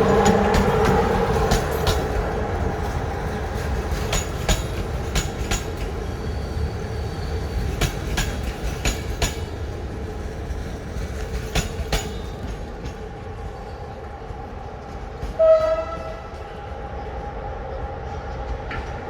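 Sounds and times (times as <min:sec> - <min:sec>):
train wheels clicking over rail joints: 0:00.0 - 0:16.6, 0:18.2 - 0:19.0
train rumble: 0:00.0 - 0:19.0.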